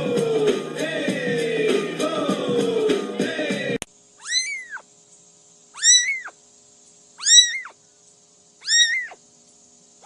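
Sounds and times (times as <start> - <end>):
cat meowing: 4.2 - 4.8, 5.8 - 6.4, 7.2 - 7.8, 8.6 - 9.2.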